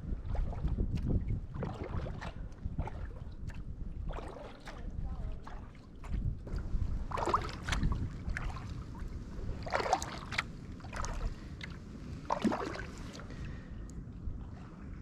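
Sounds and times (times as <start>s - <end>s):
paddle splashing into water: 0.2s - 13.4s
low rumble: 6.2s - 15.0s.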